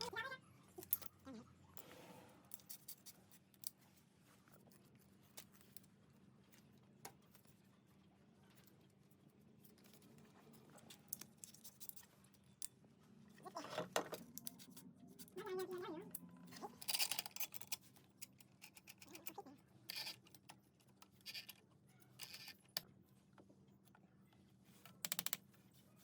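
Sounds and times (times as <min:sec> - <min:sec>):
light scrapes: 0:01.8 - 0:03.3
small clicks: 0:24.8 - 0:25.4.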